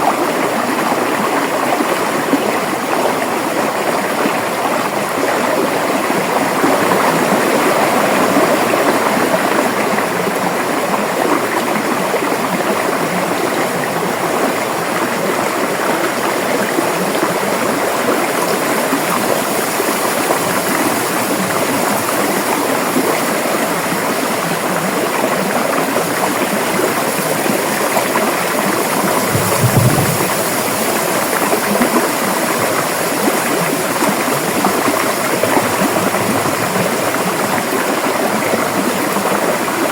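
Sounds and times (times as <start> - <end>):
river water rushing: 0.0 - 39.9
low thump: 29.3 - 30.7.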